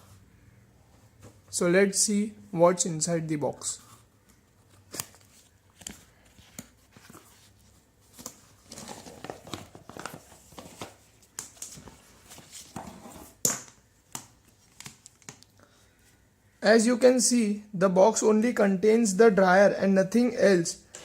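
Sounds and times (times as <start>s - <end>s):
cardboard packaging rustling and tearing: 4.8s - 13.4s.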